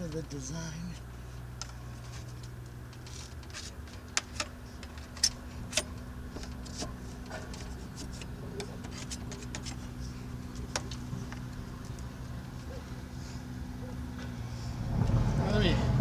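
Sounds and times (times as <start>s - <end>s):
hand tools clicking and knocking: 1.4s - 12.0s.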